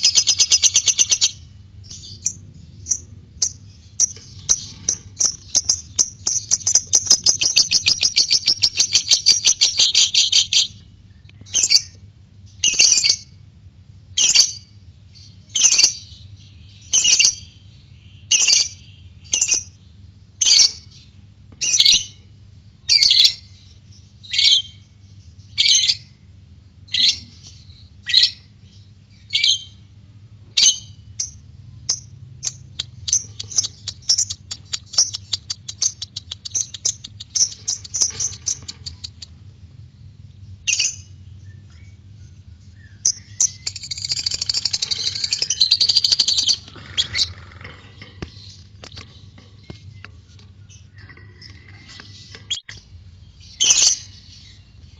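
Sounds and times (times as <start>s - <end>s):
lovebird calling: 0.0s - 10.8s, 30.6s - 39.4s, 42.7s - 52.8s
bird chirps: 0.0s - 13.4s, 30.6s - 54.9s
bird chattering: 2.0s - 10.8s, 31.2s - 39.4s, 43.0s - 50.2s, 50.8s - 52.7s.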